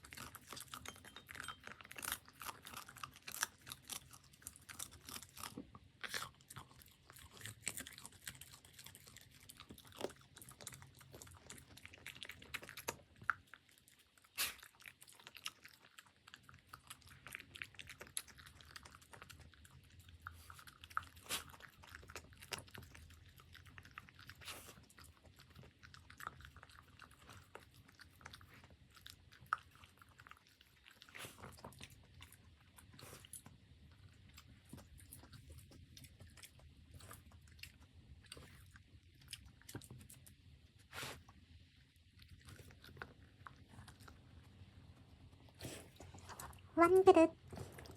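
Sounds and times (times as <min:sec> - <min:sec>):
puppy chewing food: 0:00.0 - 0:47.9.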